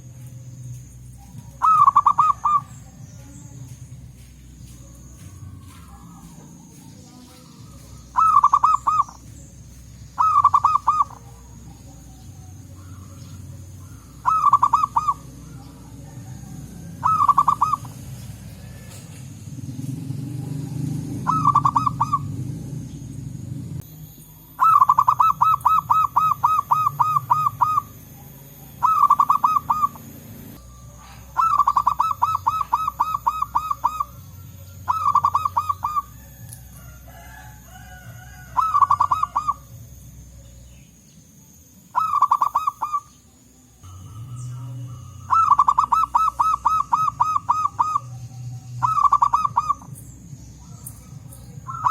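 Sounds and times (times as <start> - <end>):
doves cooing: 0.0 - 40.8, 41.4 - 51.9
low background rumble: 0.0 - 51.9.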